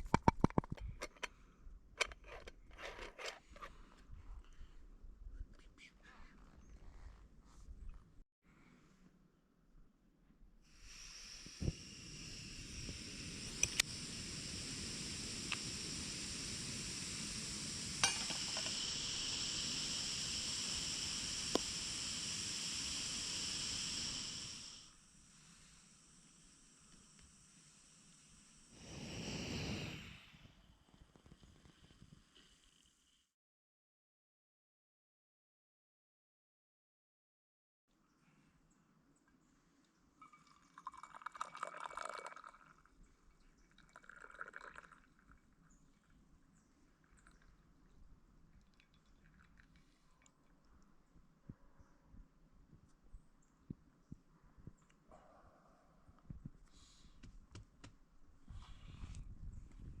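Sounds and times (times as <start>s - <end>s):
liquid being poured: 11.6s - 24.7s, 40.2s - 42.9s, 43.7s - 45.5s, 48.5s - 50.6s
sharp clicks: 13.6s - 13.9s.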